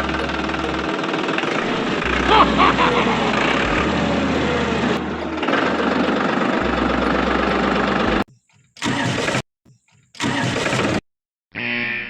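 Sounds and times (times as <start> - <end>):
motor running steadily: 0.0 - 8.2.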